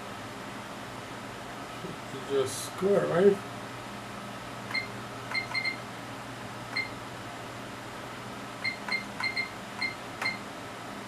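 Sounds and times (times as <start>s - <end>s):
steady hum: 0.0s - 11.0s
short high beeps: 4.7s - 5.8s, 8.6s - 10.4s.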